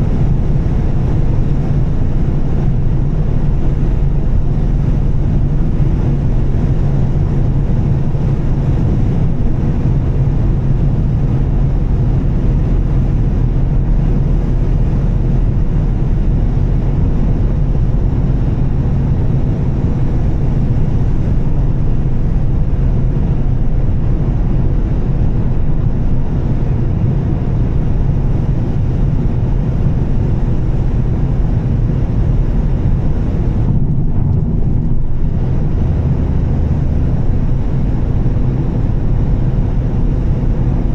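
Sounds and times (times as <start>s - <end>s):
car engine cruising: 0.0s - 40.9s.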